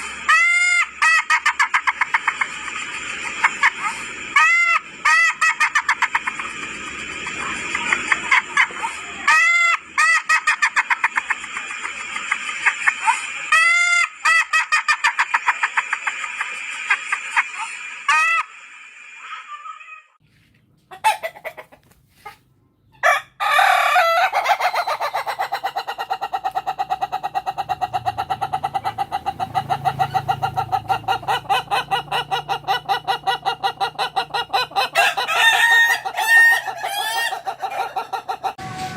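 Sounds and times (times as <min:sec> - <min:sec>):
roosters crowing: 0:00.0 - 0:01.8, 0:03.5 - 0:06.2, 0:23.0 - 0:38.9.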